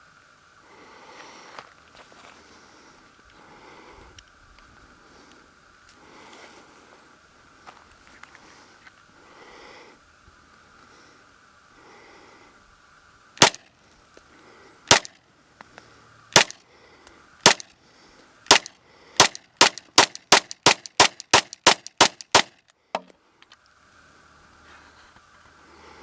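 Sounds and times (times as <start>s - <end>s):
pistol shots: 13.4s - 13.6s, 14.9s - 15.2s, 16.4s - 16.6s, 17.4s - 17.7s, 18.5s - 22.6s.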